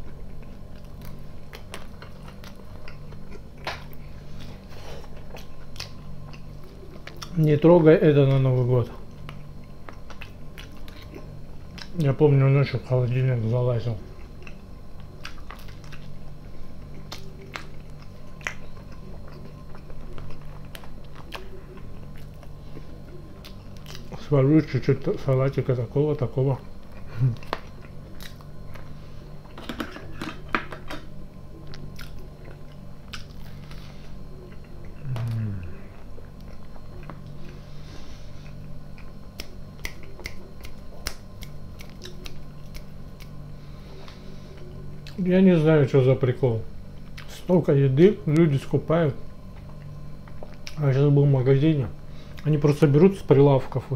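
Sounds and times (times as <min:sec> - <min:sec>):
man chewing food: 0:00.0 - 0:12.2, 0:13.8 - 0:45.3, 0:46.7 - 0:47.5, 0:49.2 - 0:50.8
steady low hum: 0:00.0 - 0:53.9
wet mouth clicks: 0:39.3 - 0:43.4.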